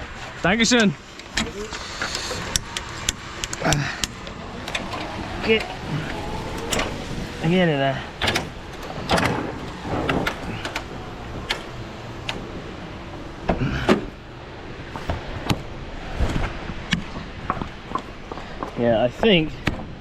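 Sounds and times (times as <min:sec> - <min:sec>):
truck engine idling: 0:00.0 - 0:15.8
knocks and clicks: 0:08.2 - 0:12.4.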